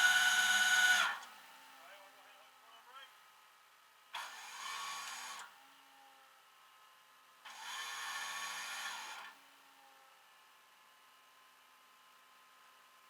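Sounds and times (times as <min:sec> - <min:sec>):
small electric motor whirring: 0:00.0 - 0:01.3, 0:04.2 - 0:05.5, 0:07.5 - 0:09.4.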